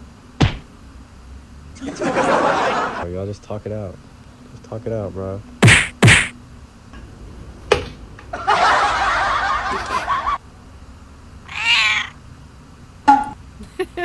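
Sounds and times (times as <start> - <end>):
sharp tap: 0.4 - 0.7, 5.6 - 6.3
cats yowling: 11.4 - 12.2.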